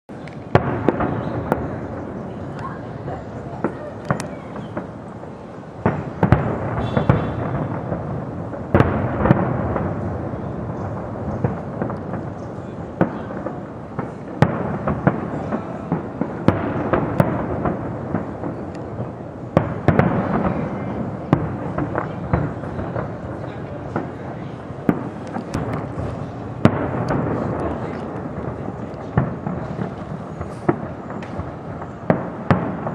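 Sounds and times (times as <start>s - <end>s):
fireworks crackling: 0.1s - 32.9s
fireworks sharp bangs: 0.1s - 32.9s.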